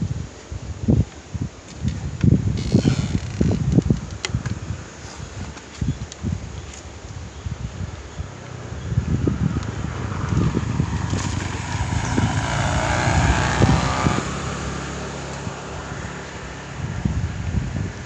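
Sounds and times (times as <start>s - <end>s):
wind rumble on microphone: 0.0s - 18.0s
motor vehicle passing by: 8.2s - 17.5s.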